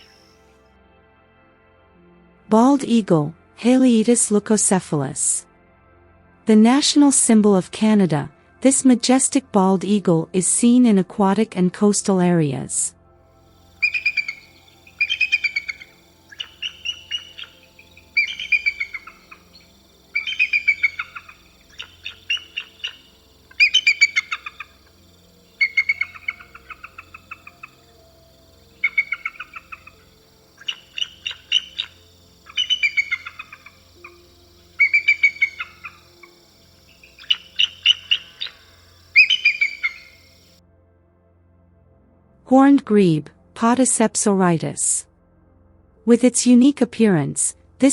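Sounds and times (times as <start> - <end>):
eagle chirping calls: 0.0 - 0.2, 13.7 - 40.6.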